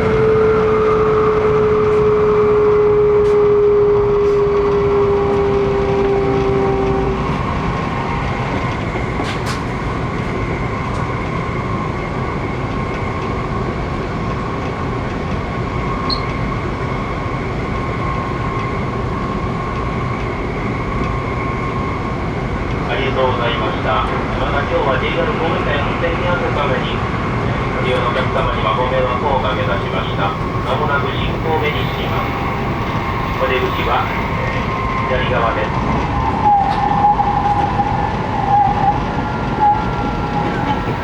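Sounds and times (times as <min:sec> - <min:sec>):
train motor whine: 0:00.0 - 0:09.9, 0:28.8 - 0:41.0
train wheels and air rushing: 0:03.0 - 0:22.8, 0:25.5 - 0:41.0.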